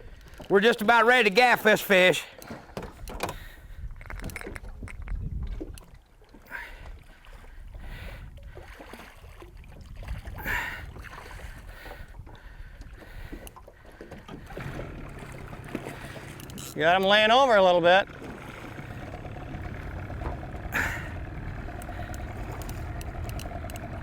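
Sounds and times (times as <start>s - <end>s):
wind: 0.0s - 24.0s
water splashes: 4.0s - 24.0s
low rumble: 18.0s - 24.0s.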